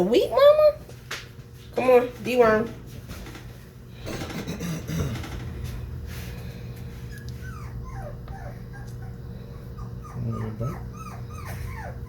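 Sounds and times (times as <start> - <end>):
puppy whimpering: 7.1 - 12.0.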